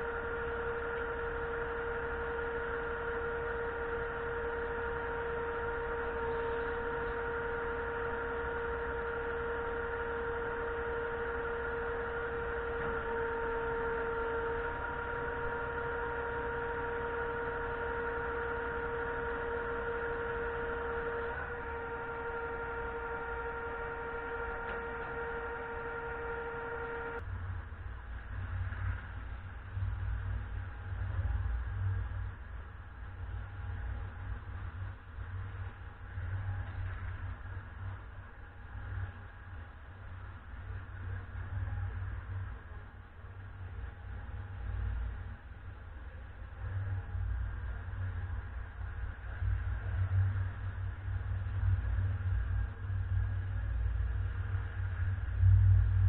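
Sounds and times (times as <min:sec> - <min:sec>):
hydraulic pump whine: 0:00.0 - 0:56.0
low engine rumble: 0:00.0 - 0:56.0.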